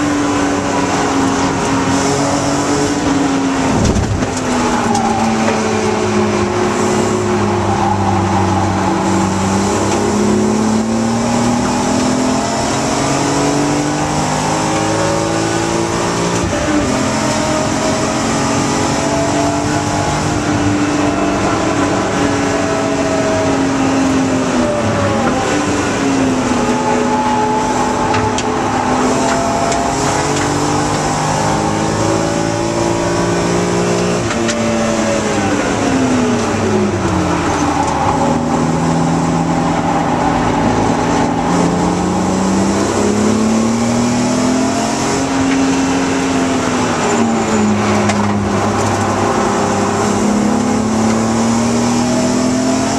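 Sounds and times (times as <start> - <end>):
car engine revving: 0.0 - 52.9
tyre and wind noise: 0.2 - 11.8.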